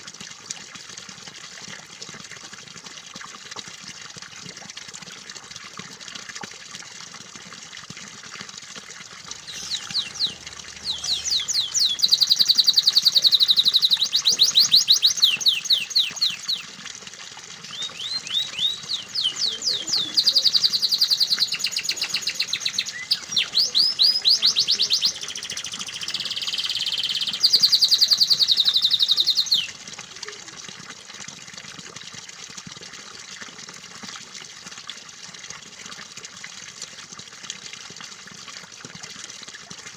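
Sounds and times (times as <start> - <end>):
running water: 0.0 - 39.9
canary singing trills: 9.4 - 16.6, 17.7 - 29.8.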